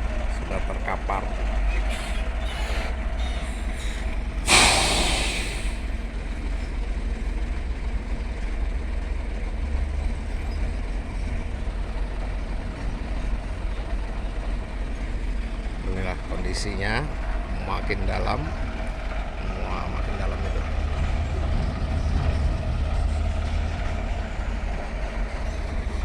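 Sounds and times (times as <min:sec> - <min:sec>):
truck diesel engine running: 0:00.0 - 0:26.0
air brake hiss: 0:01.8 - 0:06.0.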